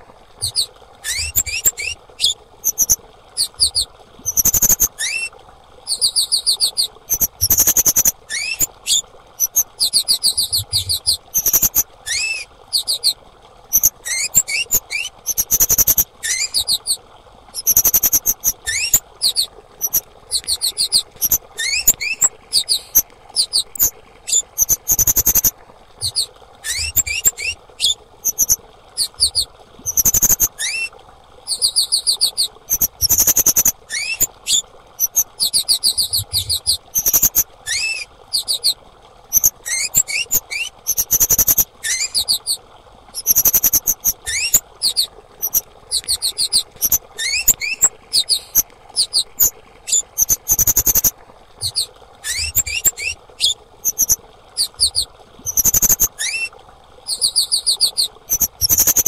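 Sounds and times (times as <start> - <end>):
songbird chittering trills: 0.4 - 5.3, 5.9 - 16.9, 17.6 - 30.9, 43.2 - 56.5.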